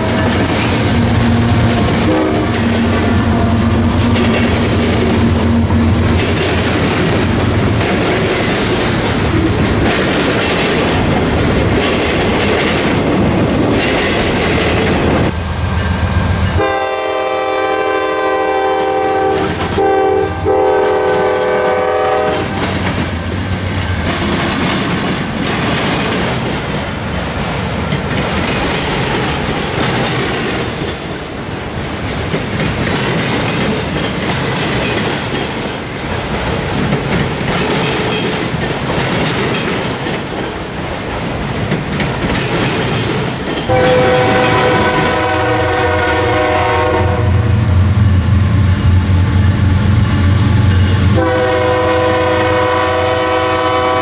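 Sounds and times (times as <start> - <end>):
locomotive air horn: 0.0 - 4.2, 16.6 - 22.7, 43.7 - 47.8, 50.6 - 54.0
train wheels clattering on rails: 0.0 - 16.7, 18.6 - 47.6
locomotive engine rumble: 0.0 - 17.8.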